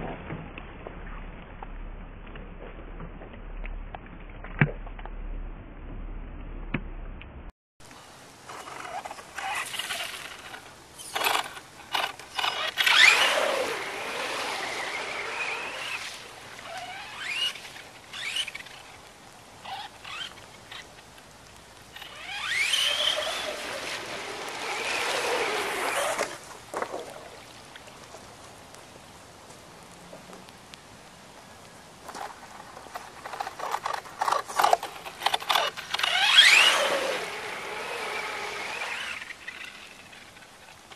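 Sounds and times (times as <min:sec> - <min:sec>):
water and mud splashing: 0:08.0 - 0:40.9
electric toy truck motor whining: 0:08.5 - 0:17.6, 0:18.2 - 0:18.7, 0:19.6 - 0:20.4, 0:22.0 - 0:26.4, 0:33.3 - 0:40.4.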